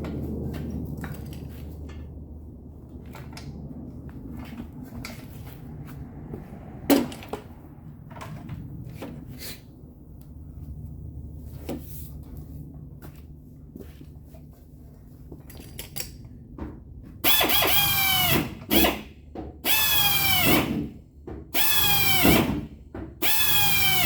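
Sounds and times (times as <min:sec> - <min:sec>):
steady low hum: 0:00.0 - 0:15.5
tools and metal clattering: 0:15.3 - 0:16.4.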